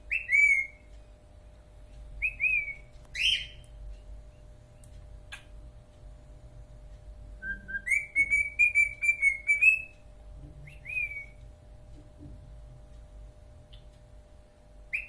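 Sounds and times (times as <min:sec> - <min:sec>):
cockatiel whistling: 0:00.1 - 0:00.8, 0:02.2 - 0:03.6, 0:07.4 - 0:10.0, 0:10.6 - 0:11.4.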